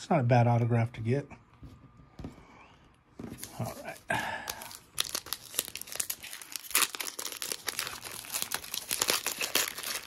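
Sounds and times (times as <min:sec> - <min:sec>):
foil wrapper crinkling and tearing: 0:03.4 - 0:10.0.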